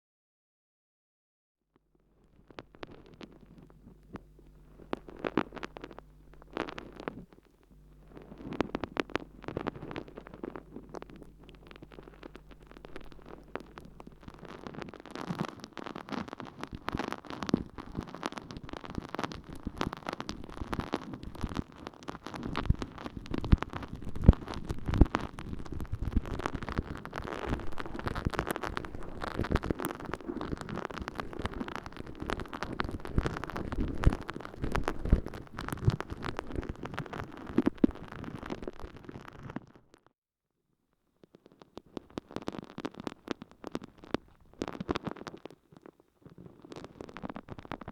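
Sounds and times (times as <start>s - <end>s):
faint low hum: 1.9s - 38.3s
wet sponge crackling in ear: 2.2s - 39.8s, 41.4s - 47.9s.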